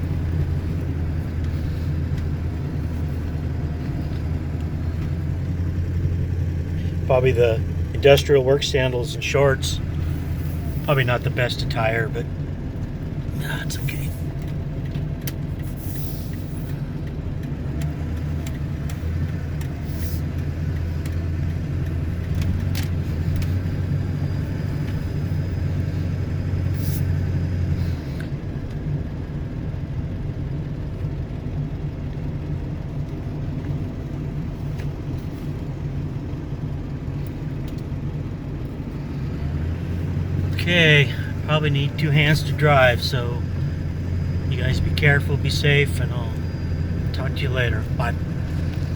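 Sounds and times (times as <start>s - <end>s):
engine and road drone in cab: 0.0s - 48.9s.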